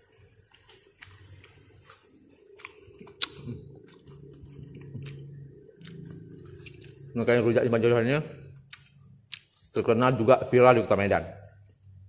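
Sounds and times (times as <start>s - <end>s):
crunchy chewing: 0.0s - 7.2s, 8.7s - 9.8s.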